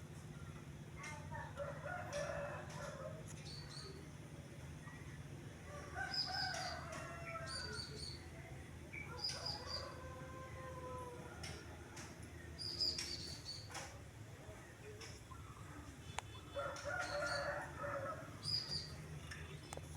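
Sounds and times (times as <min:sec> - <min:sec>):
small bird chirping: 0:12.6 - 0:13.8, 0:18.4 - 0:19.9
rooster crowing: 0:16.5 - 0:18.4.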